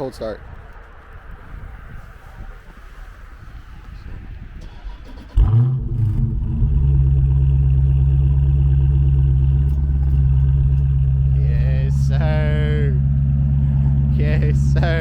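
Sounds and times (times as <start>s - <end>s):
car engine starting and idling: 4.2s - 15.0s.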